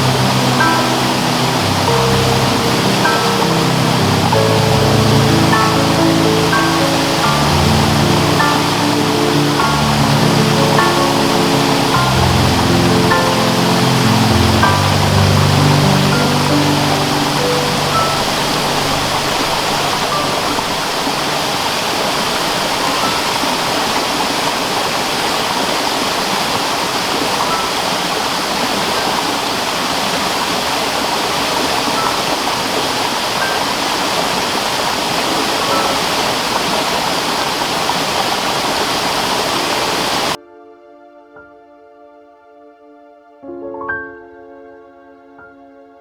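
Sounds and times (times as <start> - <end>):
faint music tones: 0.0 - 30.1
rushing water: 0.0 - 40.4.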